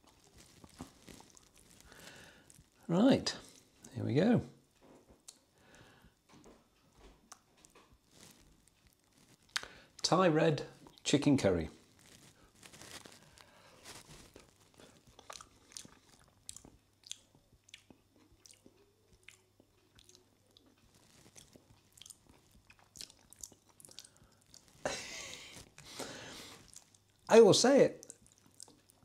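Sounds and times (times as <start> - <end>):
wet mouth clicks and smacks: 15.1 - 20.7, 22.0 - 24.7, 28.0 - 29.0.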